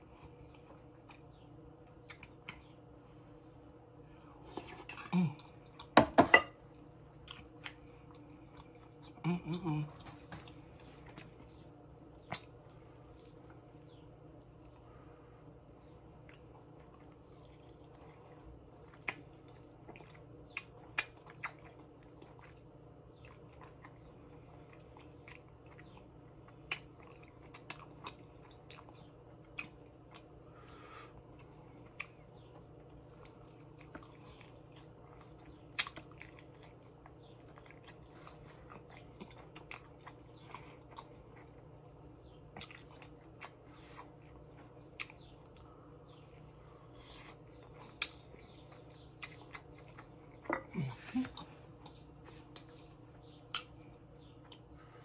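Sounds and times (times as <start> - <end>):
steady low hum: 0.0 - 55.0
wet chewing and mouth smacks: 12.2 - 54.8.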